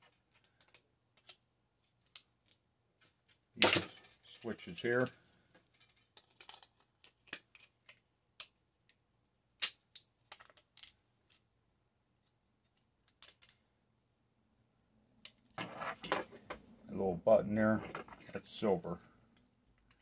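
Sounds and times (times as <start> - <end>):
plastic and metal parts clicking: 0.0 - 3.4, 5.6 - 9.0, 9.6 - 11.4, 12.6 - 13.6, 19.3 - 20.0.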